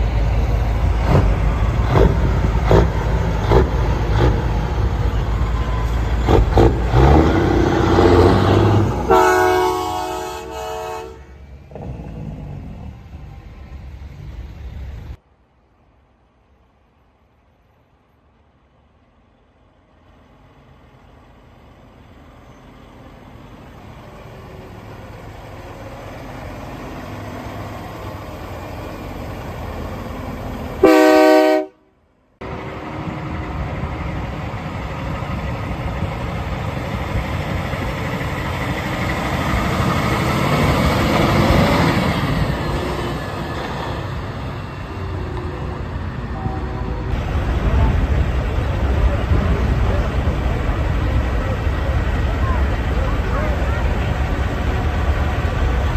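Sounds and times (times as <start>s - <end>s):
heavy vehicle rumbling past: 0.0s - 15.2s, 19.4s - 55.9s
loud vehicle horn blast: 9.0s - 11.4s, 30.8s - 31.9s.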